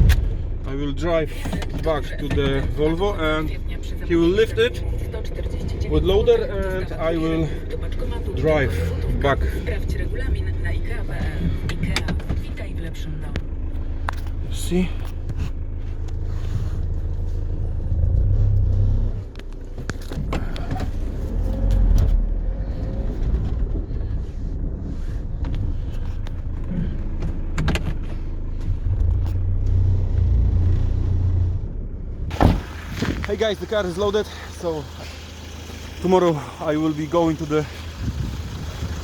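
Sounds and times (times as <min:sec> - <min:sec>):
knocks and clunks: 0:00.0 - 0:00.7, 0:11.1 - 0:13.5, 0:19.3 - 0:22.2, 0:25.4 - 0:29.4, 0:32.3 - 0:33.6
heavy vehicle engine rumbling: 0:00.0 - 0:39.0.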